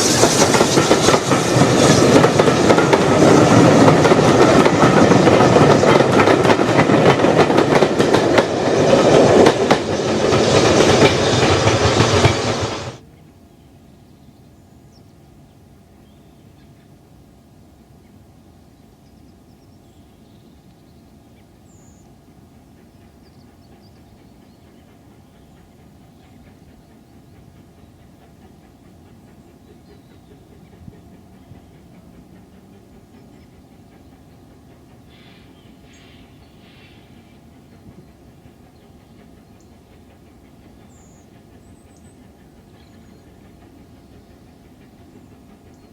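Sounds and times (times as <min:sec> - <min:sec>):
rapid rail clatter: 0:00.0 - 0:13.0
train wheels clicking over rail joints: 0:00.0 - 0:13.0, 0:22.6 - 0:45.9
train rumble: 0:00.0 - 0:13.5, 0:14.9 - 0:45.9.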